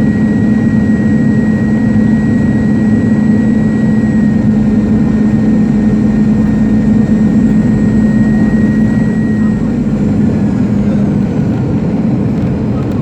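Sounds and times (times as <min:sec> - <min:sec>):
thin high whine: 0:00.0 - 0:11.1
jet engines rumbling in cabin: 0:00.0 - 0:13.0.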